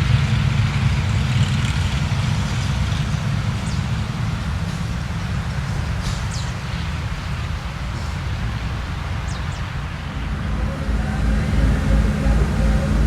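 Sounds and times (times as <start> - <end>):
motorcycle engine rumbling: 9.6 - 13.0.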